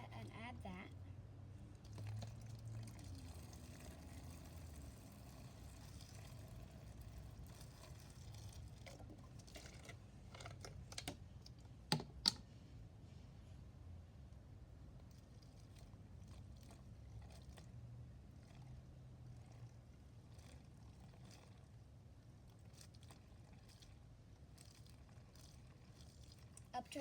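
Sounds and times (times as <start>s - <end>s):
liquid pouring into plastic bottle: 1.6s - 12.4s, 14.9s - 27.0s
plastic bottle clicks: 11.9s - 12.4s.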